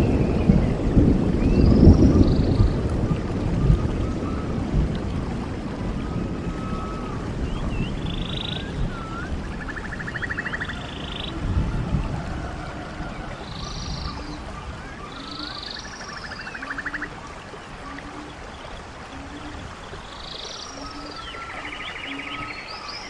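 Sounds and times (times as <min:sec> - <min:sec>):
stream water running: 0:00.0 - 0:23.0
high-pitched calls: 0:07.9 - 0:11.4, 0:13.5 - 0:17.2.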